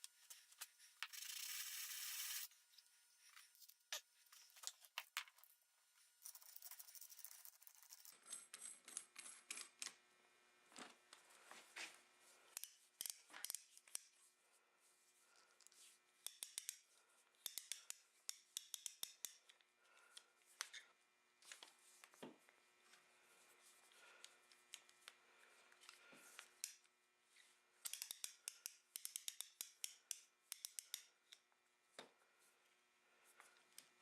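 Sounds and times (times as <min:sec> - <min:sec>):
small metal parts clicking: 0:01.0 - 0:02.5, 0:27.8 - 0:31.4.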